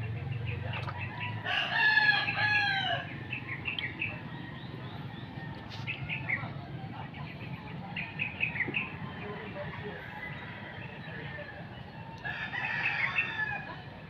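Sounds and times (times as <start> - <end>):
small birds chirping: 0.0 - 13.7
rooster crowing: 1.4 - 3.1, 12.2 - 13.8.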